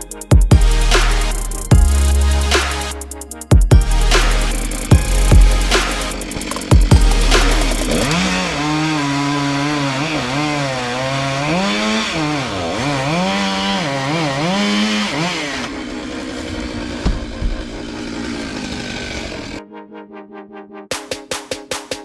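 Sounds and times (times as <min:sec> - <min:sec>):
chainsaw cutting wood: 0:05.7 - 0:19.6
sharp knocks: 0:17.0 - 0:17.7.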